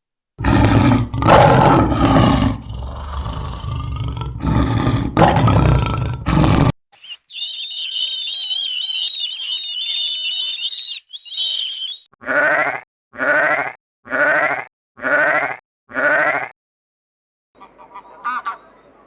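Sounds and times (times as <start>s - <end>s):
high-pitched chirping: 7.0s - 12.1s
sheep or goat bleating: 12.2s - 16.5s.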